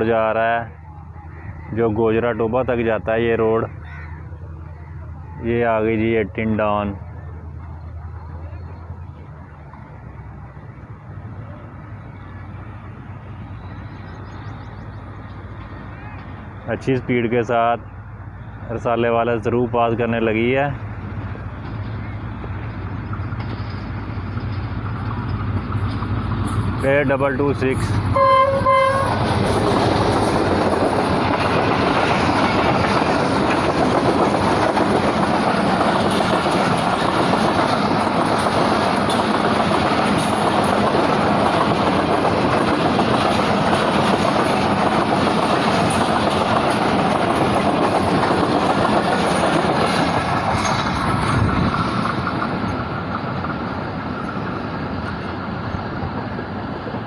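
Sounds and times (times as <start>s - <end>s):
train wheels clattering over rail joints: 20.1s - 57.0s.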